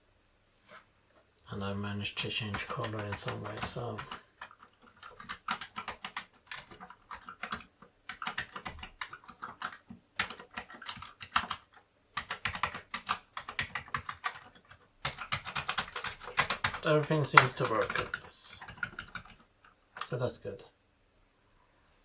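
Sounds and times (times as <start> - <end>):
keyboard keys clicking: 2.5 - 19.4.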